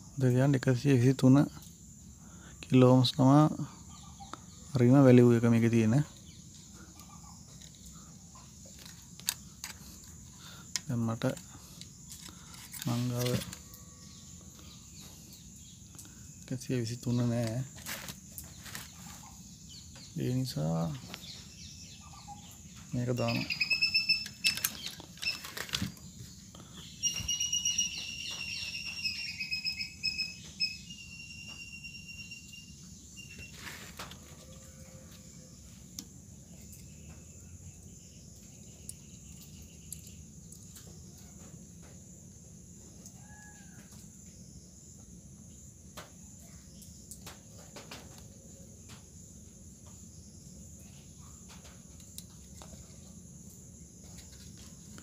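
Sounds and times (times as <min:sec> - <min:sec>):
bird chirping: 0:03.3 - 0:33.8, 0:36.4 - 0:41.4.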